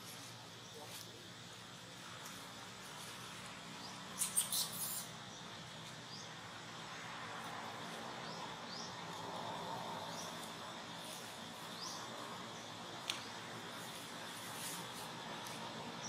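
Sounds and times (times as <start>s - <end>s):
faint bird chirps: 3.8s - 6.4s.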